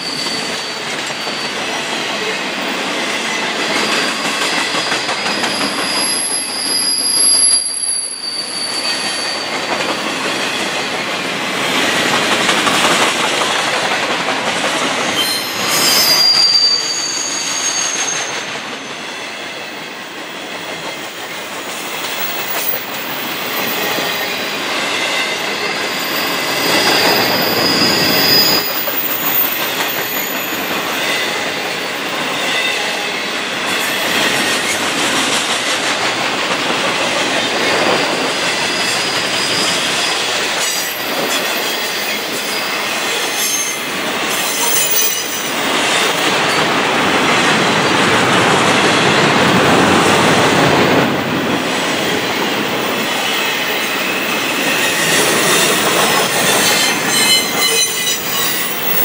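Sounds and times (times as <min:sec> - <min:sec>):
high-pitched wheel squeal: 0:00.0 - 0:01.9, 0:04.6 - 0:09.6, 0:15.2 - 0:19.4, 0:22.2 - 0:31.5, 0:38.6 - 0:45.5, 0:54.4 - 0:59.0
steel wheels clattering on rails: 0:00.0 - 0:08.0, 0:08.6 - 0:59.0.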